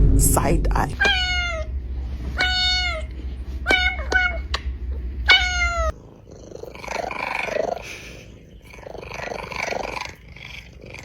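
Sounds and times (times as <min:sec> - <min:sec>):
kitten meowing: 0:01.0 - 0:01.7, 0:02.4 - 0:04.7, 0:05.3 - 0:06.0
raspy cat sound: 0:01.0 - 0:11.0.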